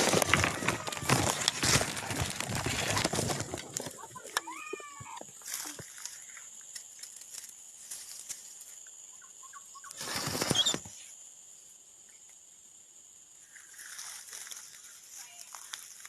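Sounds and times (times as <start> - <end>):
loud rustle: 0.0 - 4.4, 10.0 - 10.9
high-pitched insect chorus: 0.0 - 16.0
faint chirps: 9.0 - 12.7.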